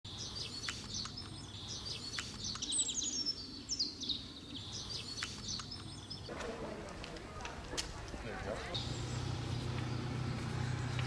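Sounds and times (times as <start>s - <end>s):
songbirds chirping and singing: 0.1s - 6.3s, 8.5s - 11.0s.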